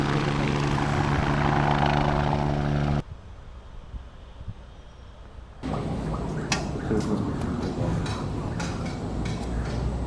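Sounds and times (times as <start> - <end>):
helicopter droning: 0.0 - 3.0, 5.6 - 10.0
faint background noise: 3.0 - 10.0.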